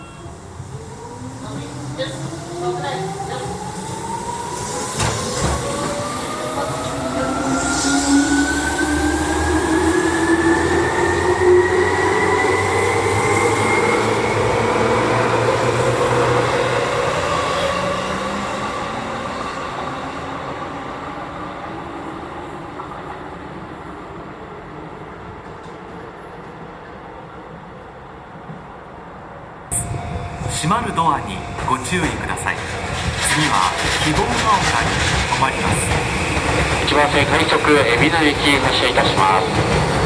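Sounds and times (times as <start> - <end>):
wheels rumbling on rails: 29.7 - 40.0.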